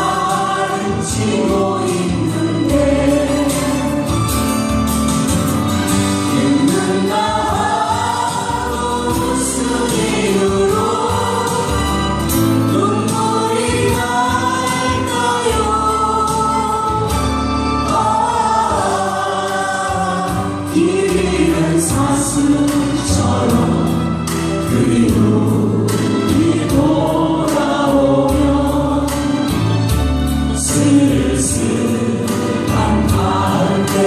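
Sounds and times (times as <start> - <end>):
gliding vocal melody: 0.0 - 4.4, 6.0 - 29.6, 30.6 - 34.0
choir singing: 0.0 - 4.5, 5.6 - 34.0
band accompaniment: 0.0 - 34.0.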